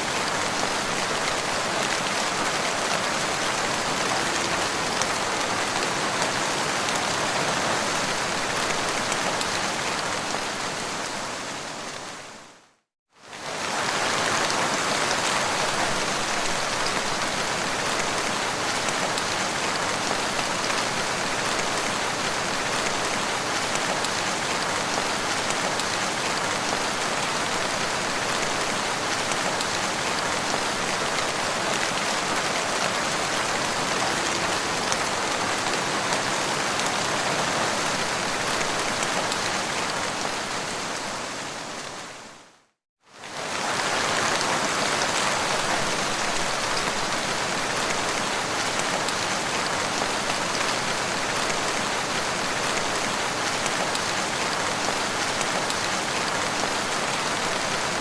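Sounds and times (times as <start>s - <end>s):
rain pattering on ground: 13.2s - 41.9s, 43.1s - 58.0s.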